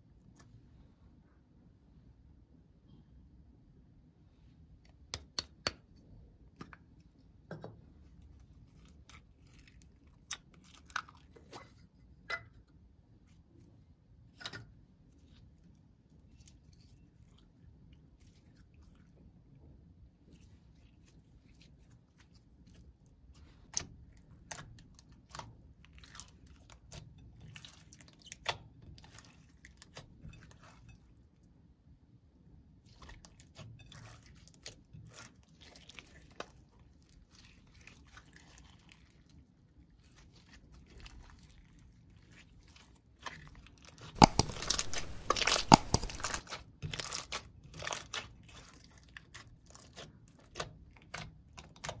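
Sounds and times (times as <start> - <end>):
slime popping and crackling: 44.2 - 48.3.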